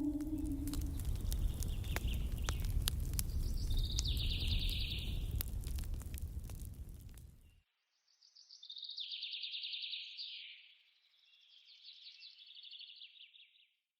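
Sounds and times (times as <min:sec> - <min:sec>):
songbird chirping: 0:00.0 - 0:02.5.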